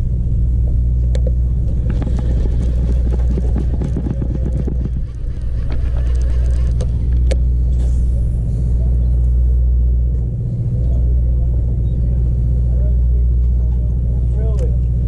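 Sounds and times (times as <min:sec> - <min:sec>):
boat engine droning: 0:00.0 - 0:15.0
rapid clicking and rattling: 0:01.6 - 0:07.4.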